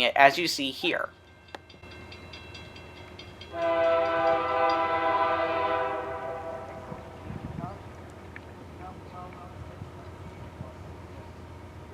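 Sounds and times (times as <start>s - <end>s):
faint train running noise: 0.0s - 11.9s
locomotive air horn: 3.5s - 7.4s.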